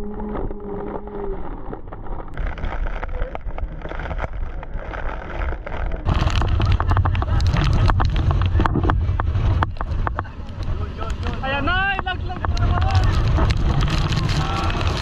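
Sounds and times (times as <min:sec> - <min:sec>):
boat rushing on water: 0:05.7 - 0:15.0
wind buffeting microphone: 0:05.7 - 0:15.0.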